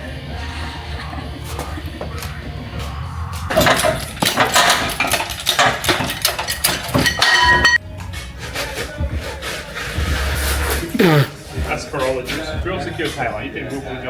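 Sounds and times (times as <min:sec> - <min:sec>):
metal clanking and knocking: 0:03.4 - 0:07.8
ringing metallic clang: 0:03.5 - 0:07.8.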